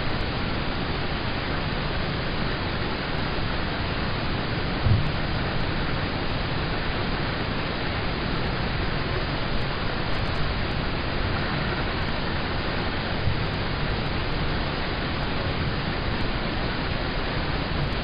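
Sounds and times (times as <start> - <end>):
dull low thump: 4.8 - 5.5.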